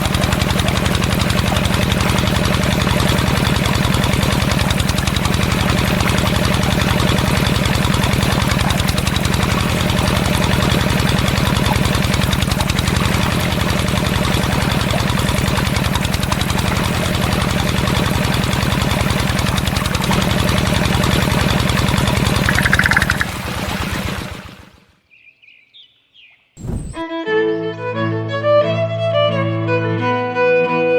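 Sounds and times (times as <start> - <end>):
small motor running: 0.0 - 21.4, 22.1 - 23.3.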